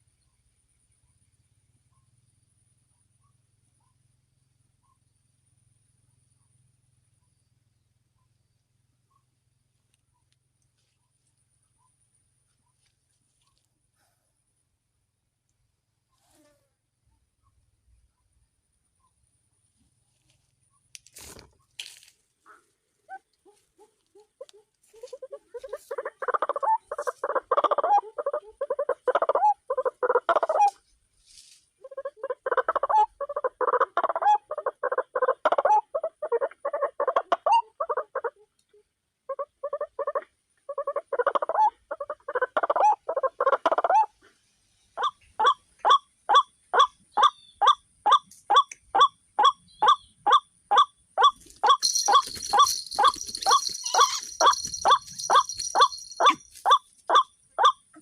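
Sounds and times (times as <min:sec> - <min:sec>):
waterhen croaking calls: 0:22.5 - 0:30.8, 0:45.0 - 0:58.0
short bird calls: 0:46.8 - 0:57.8.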